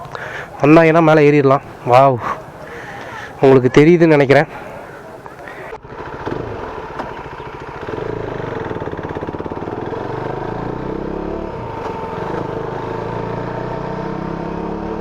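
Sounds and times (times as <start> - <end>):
motorcycle engine running: 5.7 - 15.0.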